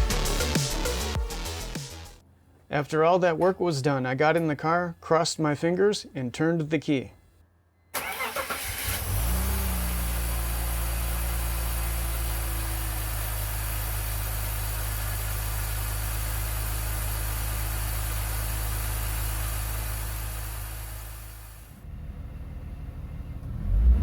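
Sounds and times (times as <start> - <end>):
car engine idling: 8.0 - 23.8.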